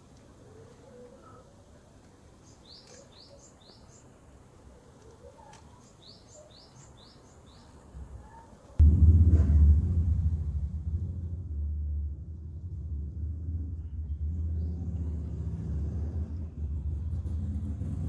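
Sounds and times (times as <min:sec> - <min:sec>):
small bird chirping: 0:02.4 - 0:04.2, 0:04.8 - 0:08.6
loud low rumble: 0:08.8 - 0:18.0.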